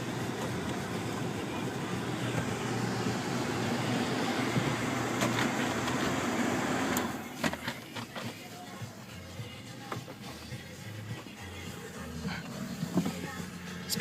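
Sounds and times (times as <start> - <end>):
climate control blower air rush: 0.0 - 7.4.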